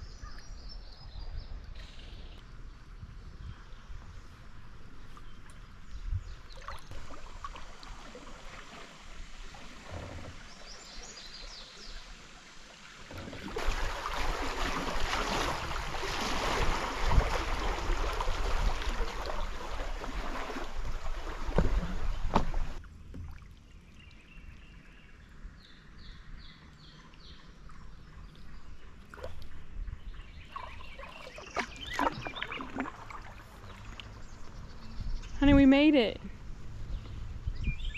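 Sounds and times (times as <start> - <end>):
creek water rushing: 6.6 - 22.8
knocks against boat: 21.5 - 23.3.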